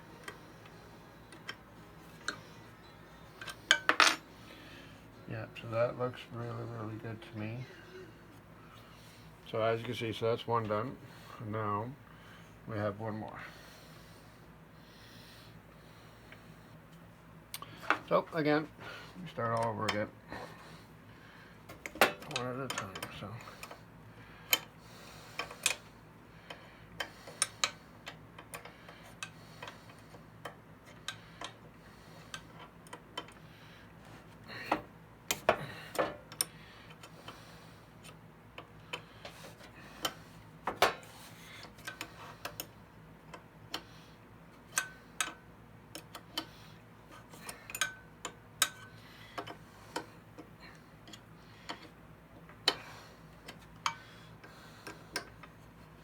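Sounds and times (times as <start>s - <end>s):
faint steady hum: 0.0s - 56.0s
metal clicks and taps of tools: 44.7s - 46.5s, 47.5s - 54.0s, 54.8s - 55.6s.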